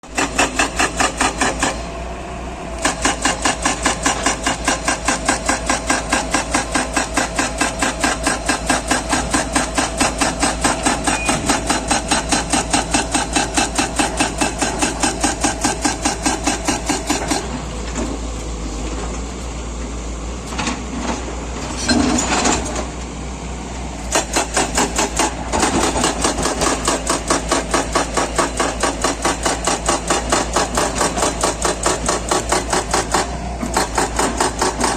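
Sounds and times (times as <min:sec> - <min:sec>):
rapid mechanical hammering: 0:00.1 - 0:01.8, 0:02.8 - 0:17.4, 0:24.1 - 0:34.9
steady machine noise: 0:24.0 - 0:34.9.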